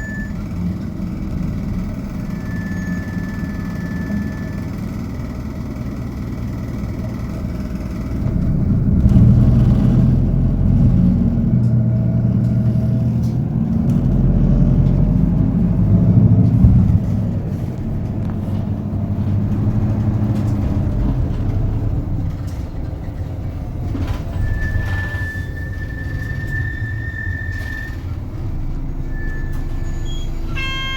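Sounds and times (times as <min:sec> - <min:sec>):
diesel engine accelerating: 0:00.0 - 0:30.9
high steady beep: 0:30.2 - 0:30.9.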